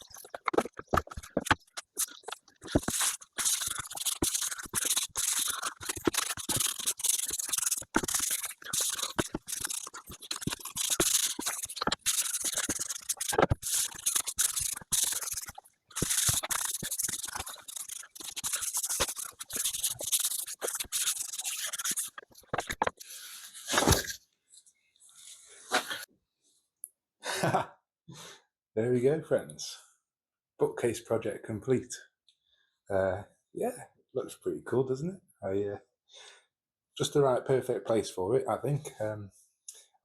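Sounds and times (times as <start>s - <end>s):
rubbing and scraping on wood: 0.0s - 24.2s.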